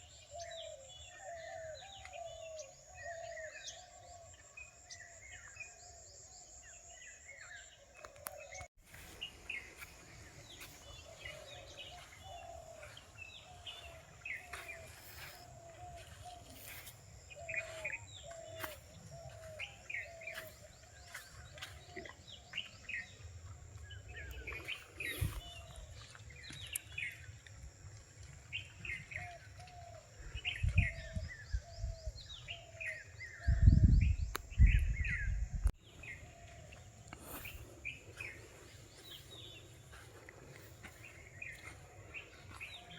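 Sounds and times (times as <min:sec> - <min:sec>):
birds chirping and calling: 0:00.0 - 0:27.2.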